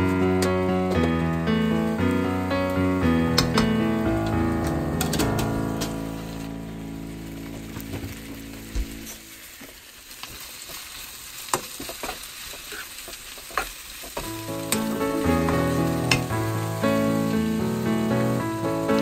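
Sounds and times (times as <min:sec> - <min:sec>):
background music: 0:00.0 - 0:09.4, 0:14.2 - 0:19.0
food sizzling in a wok: 0:05.5 - 0:19.0.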